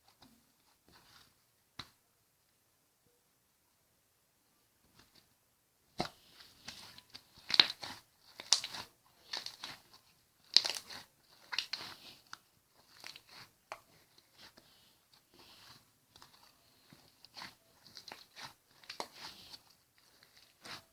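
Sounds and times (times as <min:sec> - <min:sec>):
slime crackling and squelching: 0:06.0 - 0:20.9.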